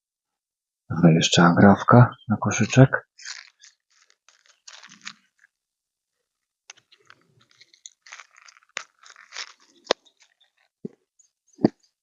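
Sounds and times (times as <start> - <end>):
small clicks and crackly rustles: 3.2 - 12.0.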